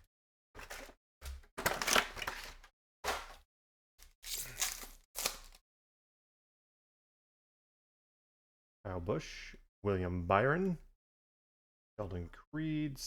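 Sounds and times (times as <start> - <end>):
packaging crinkling and tearing: 0.6 - 3.4, 4.0 - 5.6.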